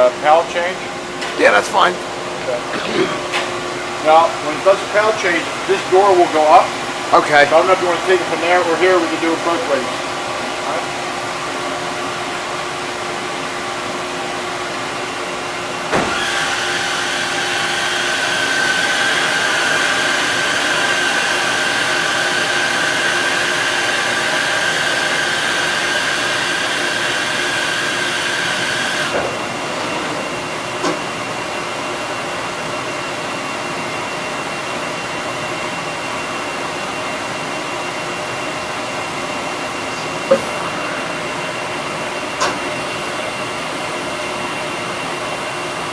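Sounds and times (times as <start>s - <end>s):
motorized whirring with high whine: 0.0s - 45.9s
machine humming: 36.8s - 45.5s.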